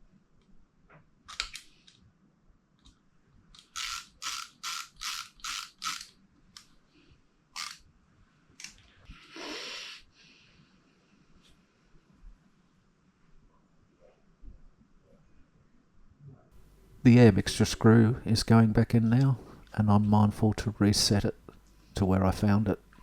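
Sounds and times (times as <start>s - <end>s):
metal parts clicking: 3.6s - 6.7s, 7.6s - 7.8s.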